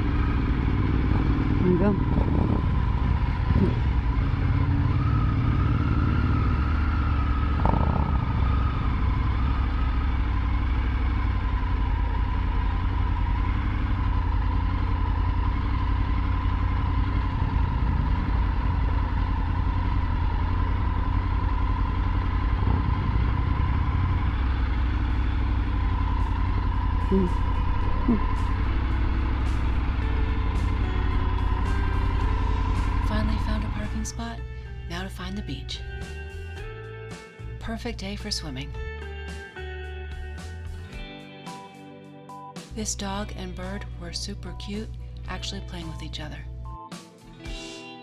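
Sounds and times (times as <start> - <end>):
motorcycle engine running: 0.0 - 41.0, 42.7 - 46.6.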